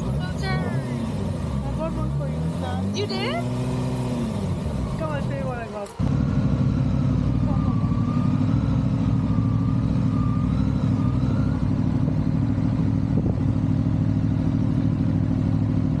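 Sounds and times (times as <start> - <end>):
motorcycle engine running: 0.0 - 16.0
low rumble of wind noise: 11.0 - 16.0.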